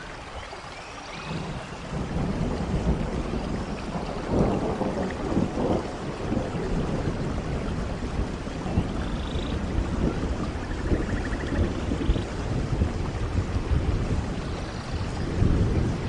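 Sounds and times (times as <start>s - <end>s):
rain falling in forest: 0.0s - 16.0s
rolling thunder: 1.3s - 16.0s.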